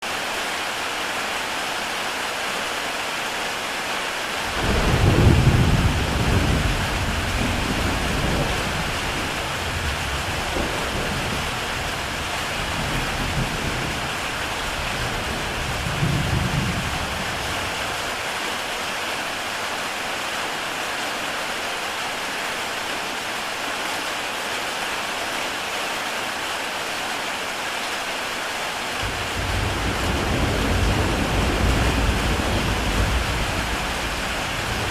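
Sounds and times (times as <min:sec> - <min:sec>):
heavy rain on a tile roof: 0:00.0 - 0:34.9
thunder rolling: 0:04.5 - 0:17.9, 0:29.0 - 0:34.9.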